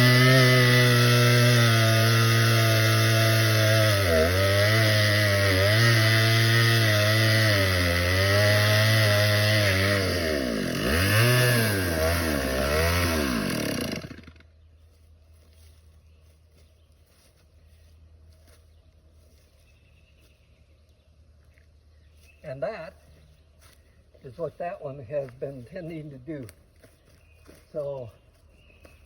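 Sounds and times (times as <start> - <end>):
two-stroke chainsaw engine running: 0.0 - 14.5.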